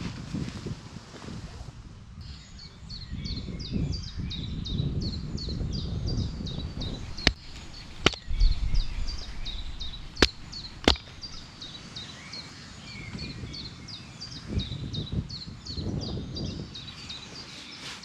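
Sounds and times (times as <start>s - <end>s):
sharp knocks or snaps: 7.0s - 8.4s, 9.2s - 11.5s.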